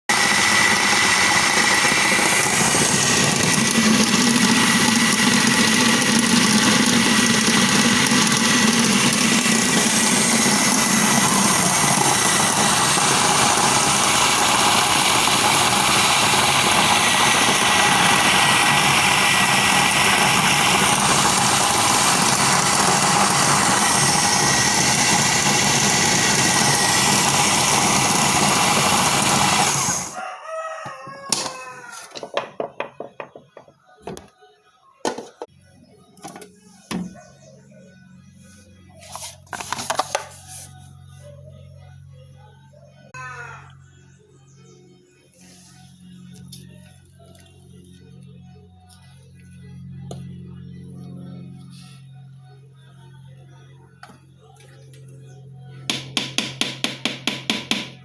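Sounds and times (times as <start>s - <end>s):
food processor motor whining: 0.1s - 30.2s.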